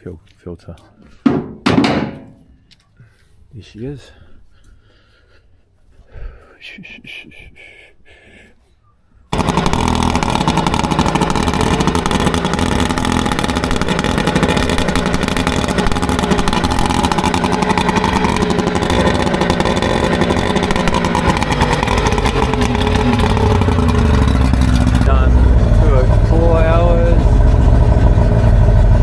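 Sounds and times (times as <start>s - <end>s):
outboard motor running: 9.3s - 29.0s.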